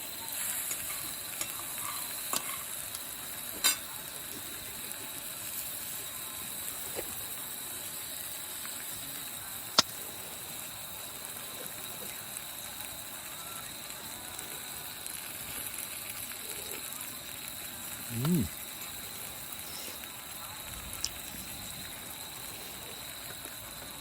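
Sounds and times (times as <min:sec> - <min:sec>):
campfire crackling and hissing: 0:00.0 - 0:24.0
fire popping: 0:00.1 - 0:24.0
fire snapping: 0:06.5 - 0:24.0.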